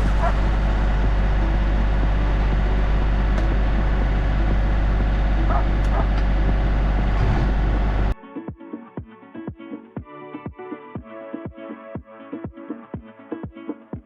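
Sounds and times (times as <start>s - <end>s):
tractor engine running: 0.0s - 8.2s.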